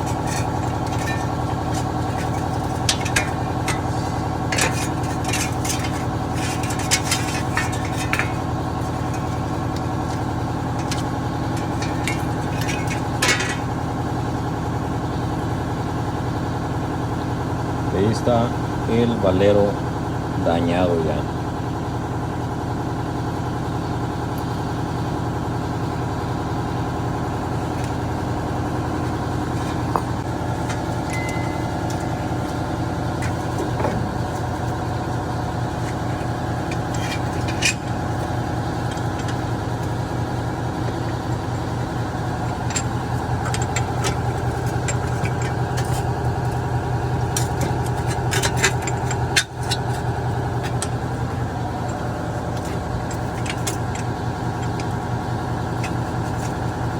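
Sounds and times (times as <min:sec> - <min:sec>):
hand tools knocking on metal: 0:00.0 - 0:14.3, 0:27.5 - 0:56.7
steady machine hum: 0:00.0 - 0:56.9.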